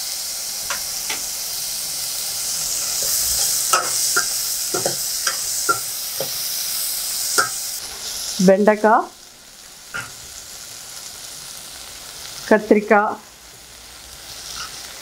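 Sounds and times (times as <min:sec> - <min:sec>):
vegetables sizzling in oil: 0:00.0 - 0:15.0
metal ladle scraping and clinking pot: 0:02.8 - 0:06.4, 0:07.4 - 0:07.6.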